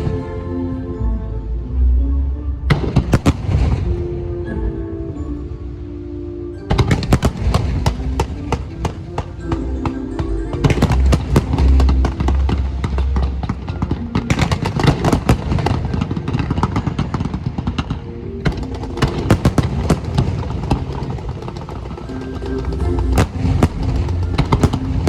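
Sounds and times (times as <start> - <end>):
music playing: 0.0 - 25.0
fireworks bangs and crackles: 2.7 - 4.1, 6.7 - 25.0.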